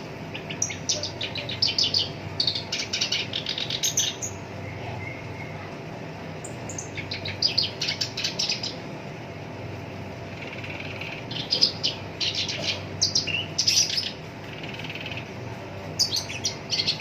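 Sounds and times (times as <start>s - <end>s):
bird singing rapid rough notes: 6.4s - 8.8s, 10.2s - 17.0s.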